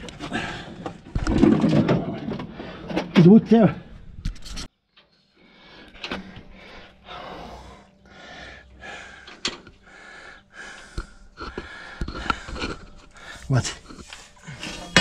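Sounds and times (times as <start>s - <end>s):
person breathing heavily: 0.1s - 1.1s, 5.3s - 14.9s.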